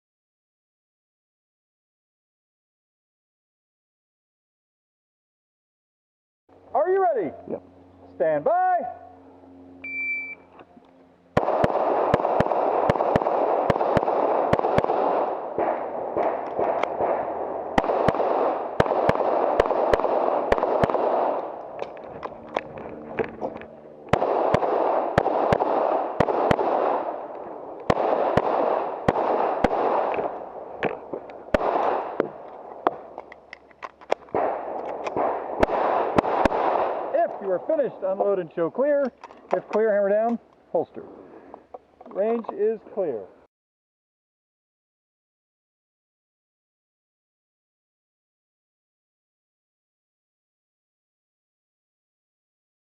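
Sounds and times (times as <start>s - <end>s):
shot timer beep: 9.8s - 10.5s
steady rushing noise: 11.3s - 33.3s
handgun shots: 11.4s - 37.1s.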